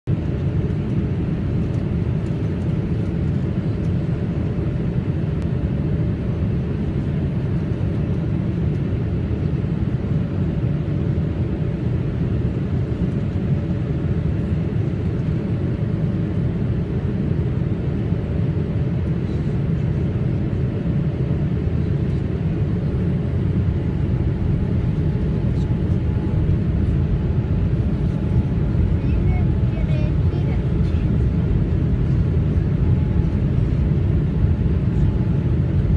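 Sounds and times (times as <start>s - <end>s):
airplane cabin roar: 0.1s - 35.9s
faint constant hum: 21.3s - 35.9s.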